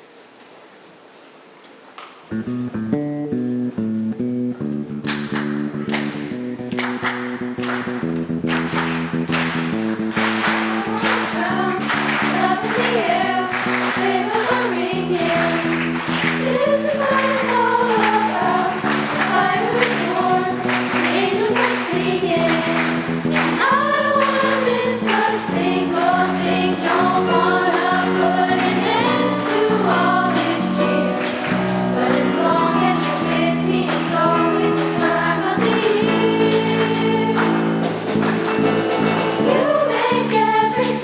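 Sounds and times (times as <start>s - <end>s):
instrumental accompaniment with beat: 2.5s - 41.0s
choir singing: 10.2s - 41.0s.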